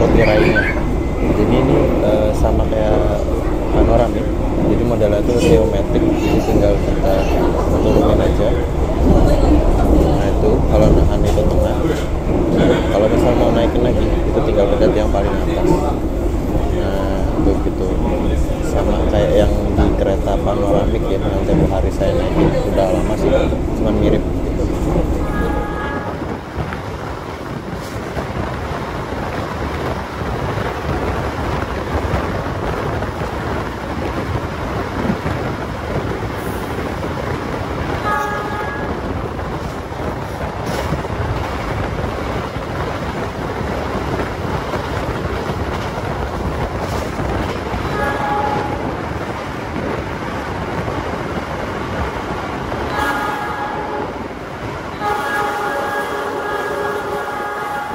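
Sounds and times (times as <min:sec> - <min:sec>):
train wheels rumbling on rail: 0:00.0 - 0:57.9
locomotive horn blasts: 0:25.2 - 0:26.3, 0:38.0 - 0:39.1, 0:47.8 - 0:48.9, 0:52.9 - 0:54.2, 0:55.0 - 0:57.9.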